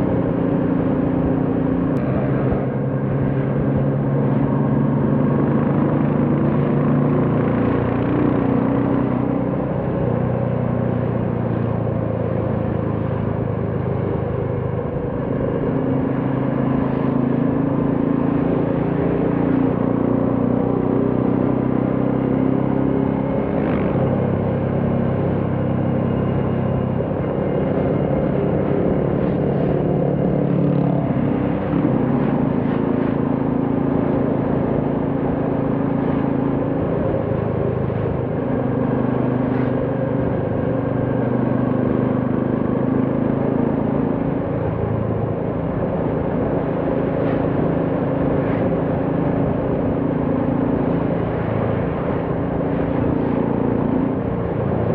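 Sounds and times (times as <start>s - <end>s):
motorcycle engine running: 0.0s - 54.9s
road noise: 0.0s - 54.9s.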